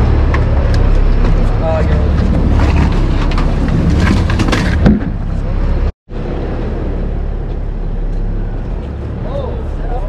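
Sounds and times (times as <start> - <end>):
knocks and clatter: 0.0 - 5.5
boat engine rumble: 0.0 - 10.0.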